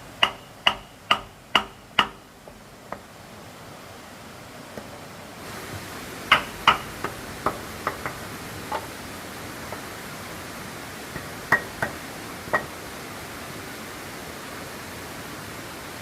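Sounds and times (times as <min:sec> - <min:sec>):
hammer knocking on wood: 0:00.2 - 0:03.0, 0:06.3 - 0:08.9.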